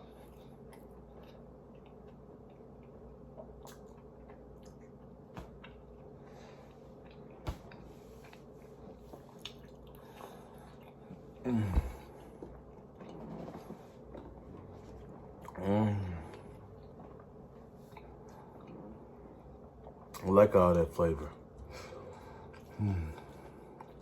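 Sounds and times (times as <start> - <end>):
person chewing food: 0.0 - 20.2, 21.6 - 24.0
person humming mmm: 11.4 - 12.1, 22.7 - 23.4.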